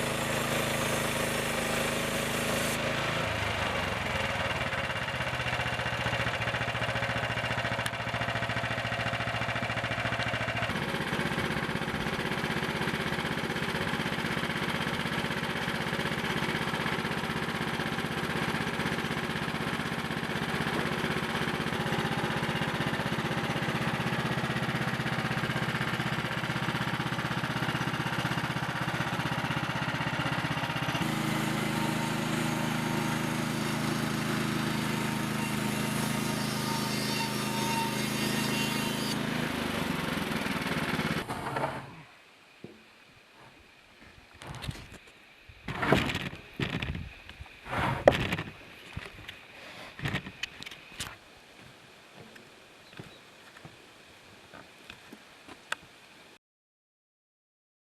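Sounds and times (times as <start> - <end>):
small gasoline engine running: 0.0 - 42.0.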